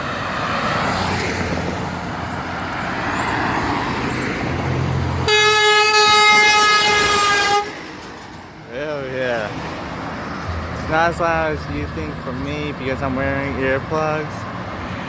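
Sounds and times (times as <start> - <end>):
truck traffic rumbling past: 0.0 - 15.0
truck air horn blast: 5.2 - 7.9.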